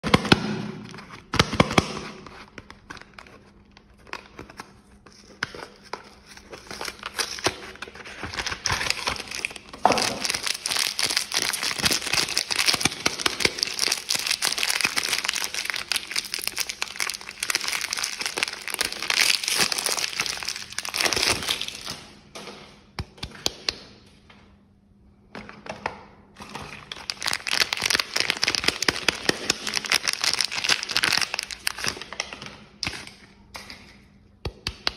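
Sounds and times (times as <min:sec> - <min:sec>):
soap packaging crinkling: 0:01.0 - 0:22.2, 0:26.4 - 0:33.8
packaging tearing: 0:06.4 - 0:22.0, 0:26.4 - 0:33.1.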